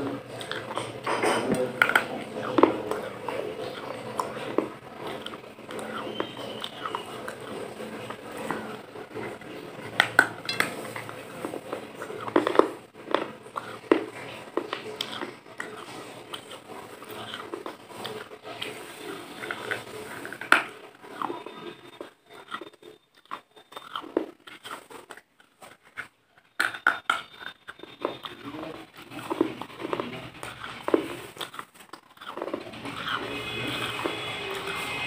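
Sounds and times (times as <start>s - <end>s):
chewing crunchy food: 0.0s - 35.0s.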